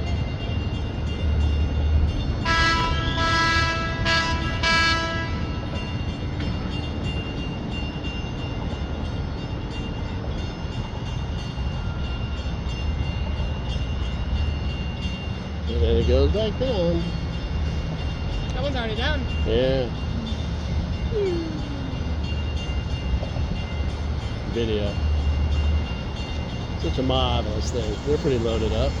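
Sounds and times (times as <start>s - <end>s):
loud horn blasts: 2.5s - 5.6s.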